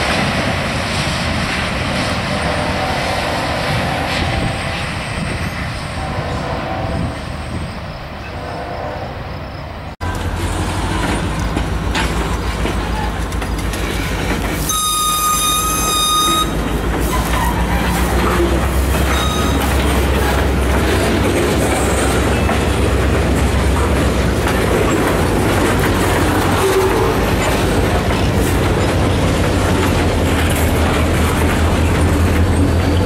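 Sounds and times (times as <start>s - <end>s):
train rumbling past: 0.0s - 33.0s
high-pitched squeal: 14.6s - 23.0s.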